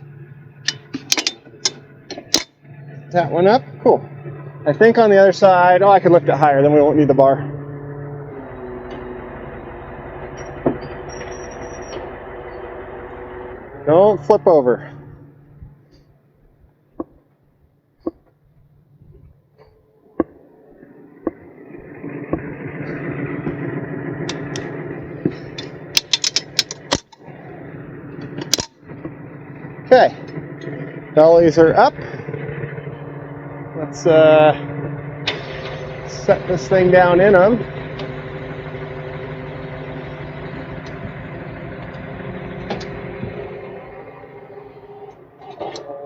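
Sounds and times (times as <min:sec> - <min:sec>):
mechanical creaking and grinding: 0:00.0 - 0:46.0
truck engine idling: 0:00.0 - 0:46.0
sharp metal clicks: 0:00.6 - 0:02.6, 0:24.2 - 0:24.8, 0:25.5 - 0:27.3, 0:28.2 - 0:29.2.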